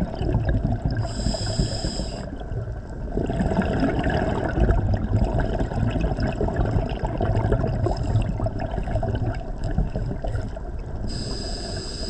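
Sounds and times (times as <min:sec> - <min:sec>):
underwater bubbles gurgling: 0:00.0 - 0:12.0
regulator air hiss: 0:01.0 - 0:02.3, 0:11.1 - 0:12.0.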